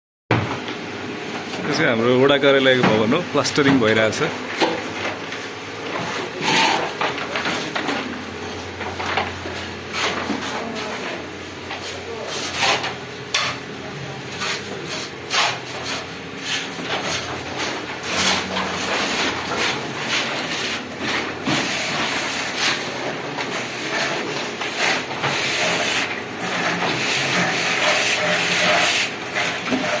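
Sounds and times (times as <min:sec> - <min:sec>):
trowels scraping plaster: 0:11.8 - 0:13.0, 0:14.3 - 0:30.0.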